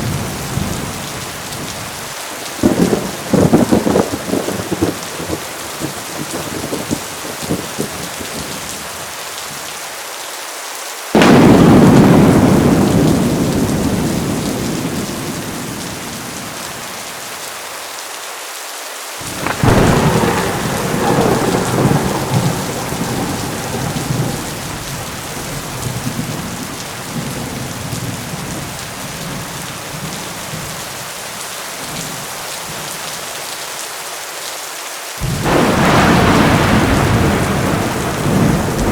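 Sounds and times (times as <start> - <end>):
thunder cracking and rumbling: 0.0 - 8.7, 11.2 - 17.1, 19.2 - 30.8, 35.2 - 38.9
heavy rain falling: 0.0 - 38.9.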